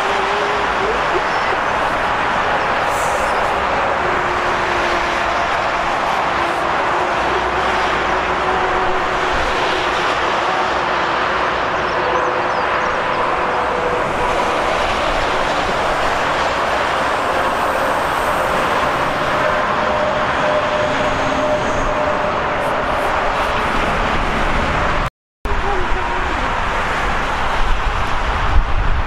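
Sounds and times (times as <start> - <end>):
train wheels rolling on track: 0.0 - 25.1.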